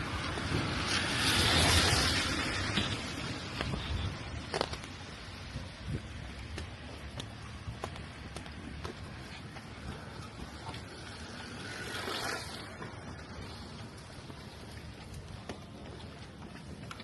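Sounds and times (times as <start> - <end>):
vehicle tyre hiss on wet road: 0.0 - 5.5, 10.8 - 14.1
rain on a street: 0.0 - 17.0.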